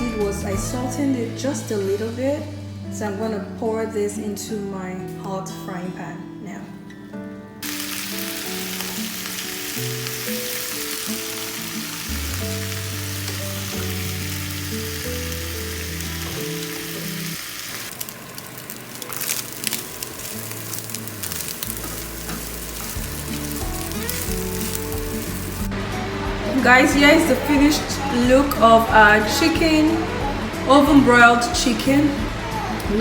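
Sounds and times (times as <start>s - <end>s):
vegetables sizzling in oil: 7.6s - 33.0s.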